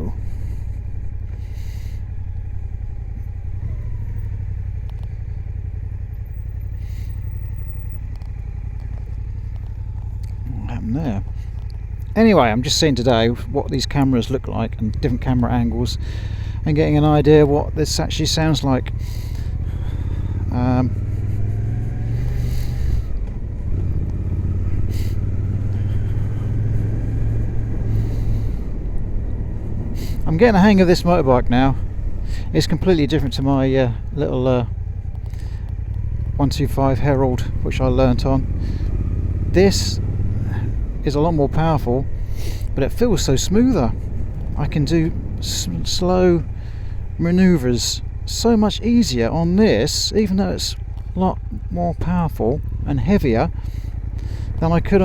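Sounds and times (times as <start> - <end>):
motorcycle engine rumble: 0.0 - 55.0
wind noise: 25.7 - 32.6, 42.1 - 47.1.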